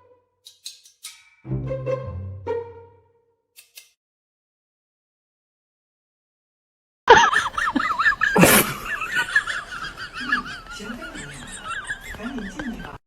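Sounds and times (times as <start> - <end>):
high-pitched laughter: 7.1 - 13.0.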